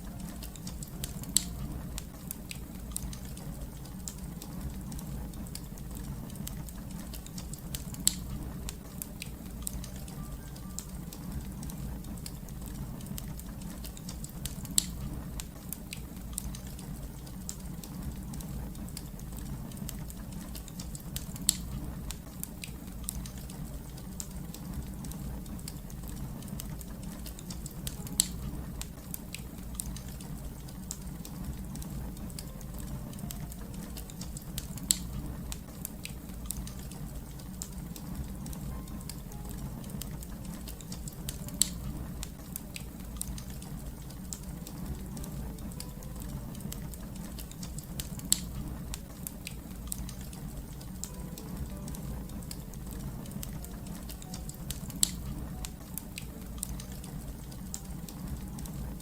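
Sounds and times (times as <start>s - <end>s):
fire crackling: 0.0s - 59.0s
loud pops from fire: 12.2s - 17.0s.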